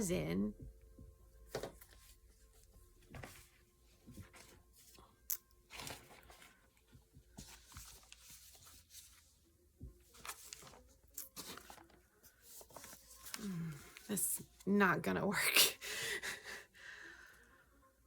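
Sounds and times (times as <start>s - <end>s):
painting being handled: 1.5s - 14.6s.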